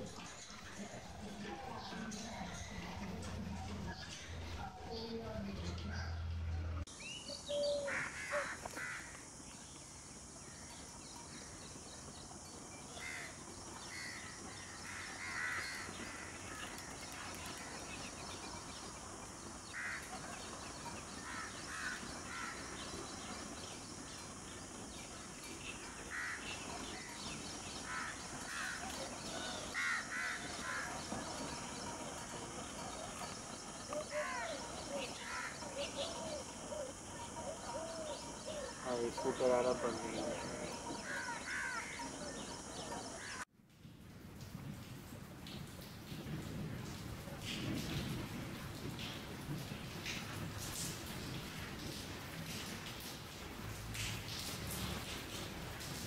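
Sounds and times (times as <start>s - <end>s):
steady background hiss: 6.9s - 56.0s
crow-like caws: 7.6s - 9.2s, 13.0s - 16.8s, 19.7s - 20.2s, 21.2s - 22.8s, 26.1s - 26.6s, 27.8s - 28.8s, 29.4s - 31.1s, 40.3s - 42.4s.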